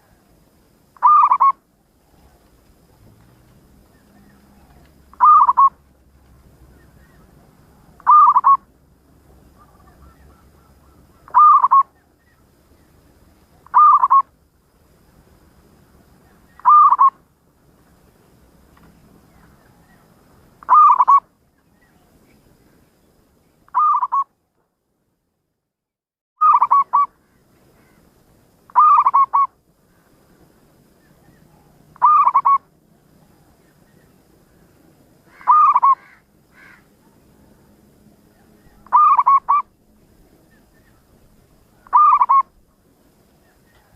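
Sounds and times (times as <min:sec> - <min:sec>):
dove cooing: 0:01.0 - 0:02.5, 0:03.8 - 0:05.8, 0:06.9 - 0:08.7, 0:09.5 - 0:12.0, 0:13.6 - 0:14.3, 0:16.3 - 0:17.2, 0:20.6 - 0:21.2, 0:26.4 - 0:27.1, 0:28.7 - 0:29.5, 0:31.3 - 0:32.7, 0:35.3 - 0:36.8, 0:38.3 - 0:39.7, 0:41.8 - 0:42.6.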